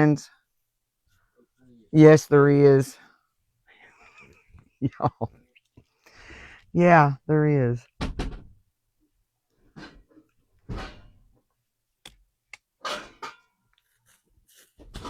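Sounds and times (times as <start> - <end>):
pans knocking and scraping: 12.8 - 13.6.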